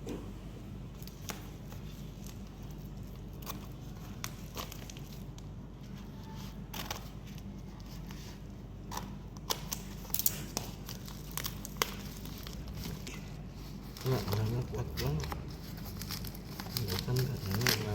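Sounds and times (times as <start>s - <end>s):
steady low hum: 0.0s - 17.9s
plastic packaging crinkling: 1.0s - 17.9s.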